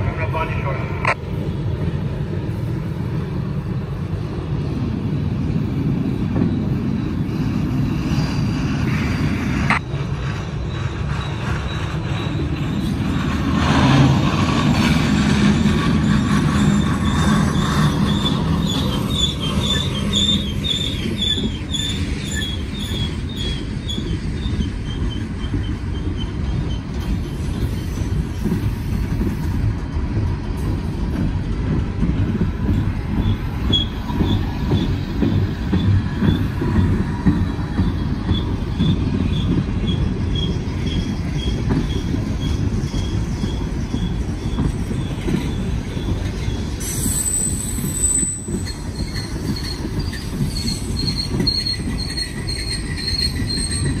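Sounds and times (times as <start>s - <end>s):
train wheels rumbling on rail: 0.0s - 54.0s
high-pitched wheel squeals: 16.0s - 28.0s, 38.3s - 54.0s.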